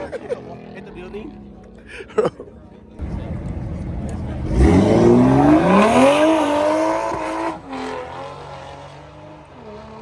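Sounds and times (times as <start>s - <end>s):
car engine revving: 4.1s - 10.0s.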